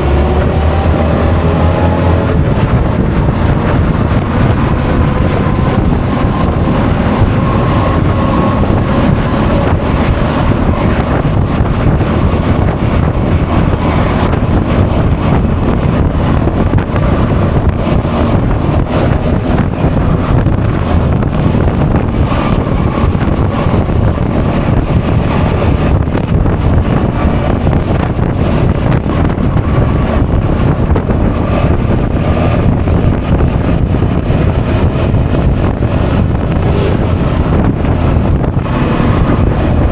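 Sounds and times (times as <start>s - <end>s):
scooter engine whine: 0.0s - 39.9s
wind buffeting microphone: 0.0s - 39.9s.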